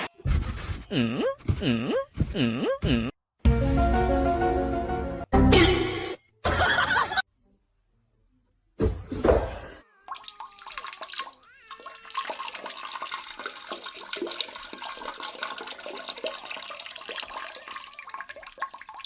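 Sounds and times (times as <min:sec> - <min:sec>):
water running and splashing: 0:10.1 - 0:19.0.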